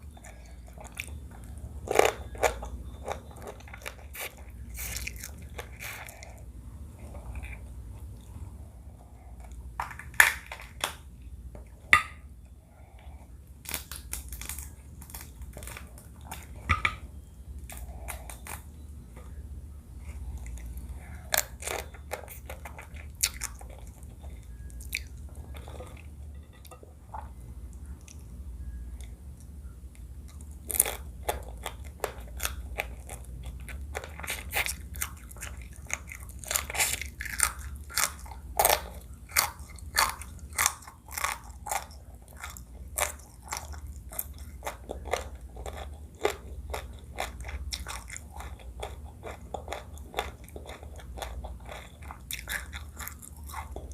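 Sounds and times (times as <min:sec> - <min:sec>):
chewing and crunching: 0:00.0 - 0:19.4, 0:20.0 - 0:28.4, 0:29.0 - 0:53.9
low hum: 0:00.0 - 0:34.0.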